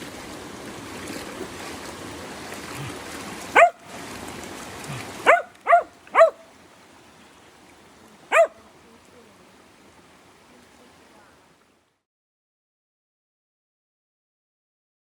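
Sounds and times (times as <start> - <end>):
creek rushing: 0.0 - 12.0
dog barking: 3.5 - 3.9, 5.2 - 6.5, 8.3 - 8.6.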